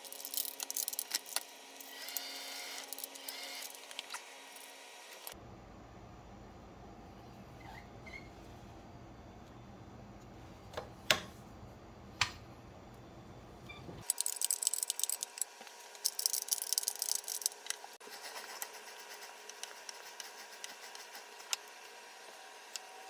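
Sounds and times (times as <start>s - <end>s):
hand tools clicking and rattling: 0.0s - 1.4s, 14.0s - 17.8s.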